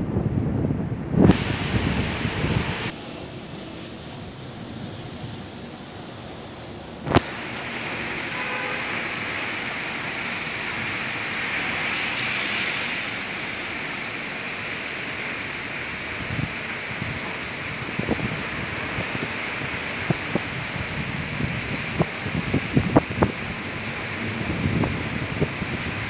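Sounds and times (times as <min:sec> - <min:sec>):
wind gusts thumping on microphone: 0:00.0 - 0:03.4, 0:07.0 - 0:08.2, 0:15.5 - 0:26.0
heavy rain hissing: 0:01.1 - 0:05.8, 0:07.0 - 0:26.0.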